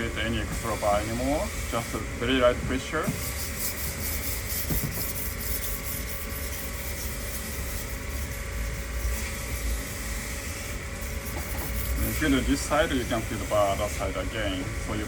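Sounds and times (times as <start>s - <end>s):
knife scraping on whetstone: 3.0s - 14.0s.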